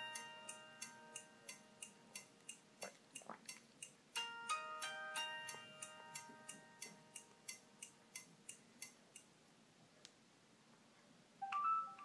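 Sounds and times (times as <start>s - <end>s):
bright chime: 4.2s - 7.2s.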